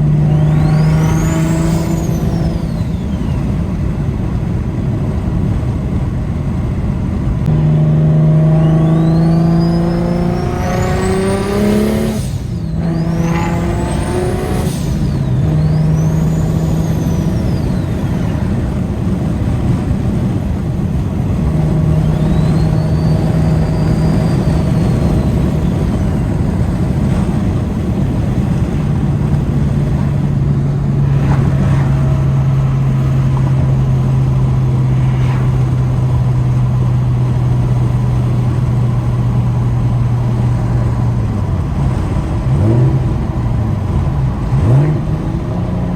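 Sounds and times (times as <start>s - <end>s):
turbo whistle: 0.0s - 3.6s, 7.5s - 18.4s, 21.6s - 26.5s
car engine accelerating: 0.0s - 45.9s.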